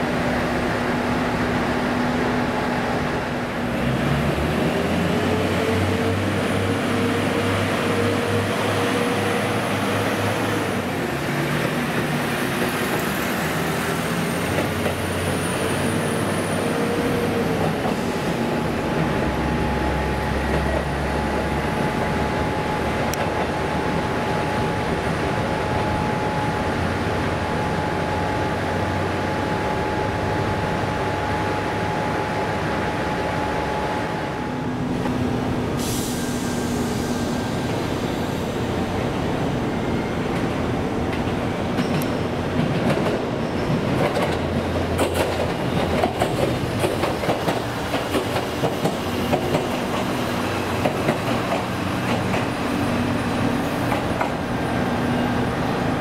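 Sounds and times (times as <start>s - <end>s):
wheels clacking over rail joints: 41.1s - 54.5s.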